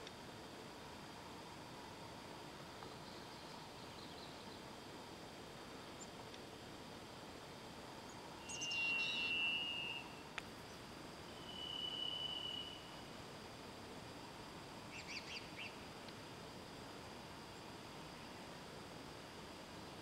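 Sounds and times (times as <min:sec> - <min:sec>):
bird chirps: 0:08.4 - 0:10.2
whistled bird notes: 0:08.4 - 0:10.3, 0:11.3 - 0:13.0.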